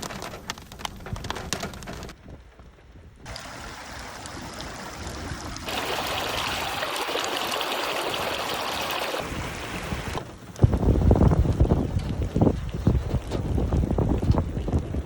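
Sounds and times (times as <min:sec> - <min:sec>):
rainwater running: 0:03.3 - 0:15.0.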